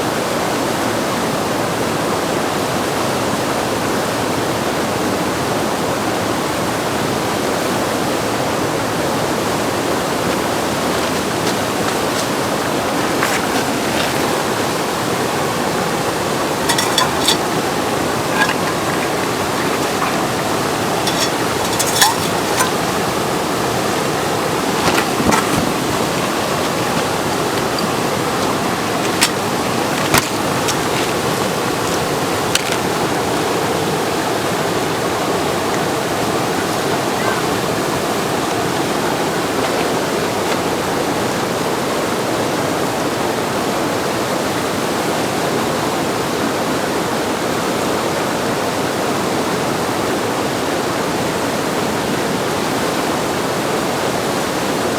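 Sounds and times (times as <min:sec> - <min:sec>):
whitewater rushing: 0:00.1 - 0:54.9.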